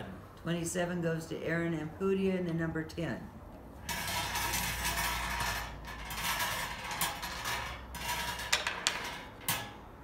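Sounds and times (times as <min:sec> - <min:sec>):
balls rattling in a container: 0:03.9 - 0:10.0.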